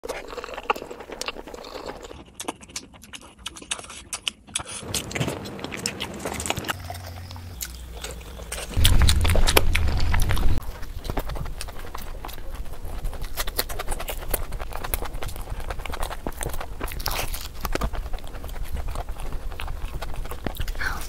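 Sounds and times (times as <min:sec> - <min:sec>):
wet chewing and lip-smacking: 0:00.0 - 0:21.0
low rumble: 0:04.9 - 0:12.0.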